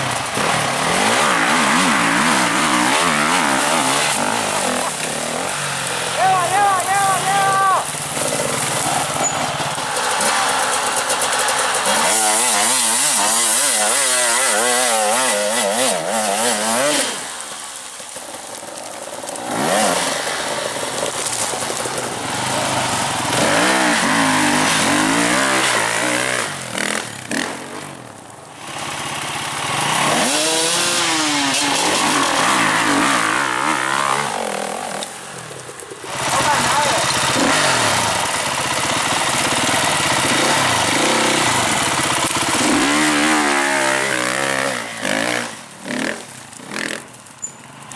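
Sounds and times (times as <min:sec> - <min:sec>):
dirt bike engine revving: 0:00.0 - 0:17.5, 0:19.3 - 0:47.2.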